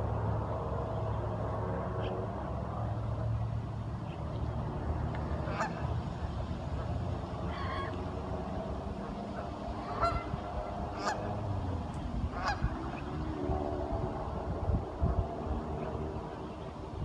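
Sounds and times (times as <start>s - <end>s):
ducks honking: 5.4s - 6.0s, 9.0s - 11.5s, 12.3s - 13.1s.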